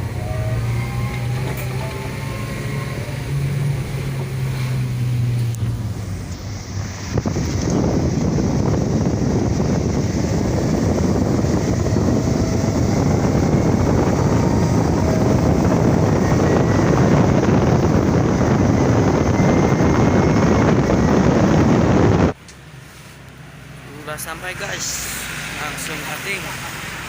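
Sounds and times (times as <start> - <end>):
wind buffeting microphone: 0.0 - 22.4
vehicle road and engine noise: 0.0 - 27.0.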